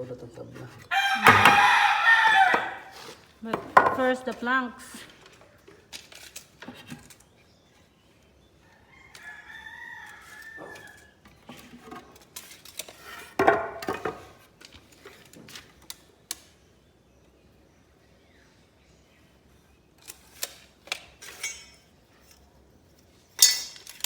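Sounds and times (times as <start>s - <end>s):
rooster crowing: 0.9s - 3.0s, 8.7s - 11.1s
sharp knocks: 1.2s - 1.8s.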